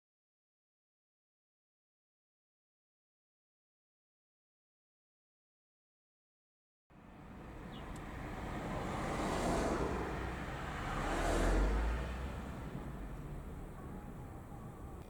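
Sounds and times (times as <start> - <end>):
fire trucks driving past: 7.0 - 15.0.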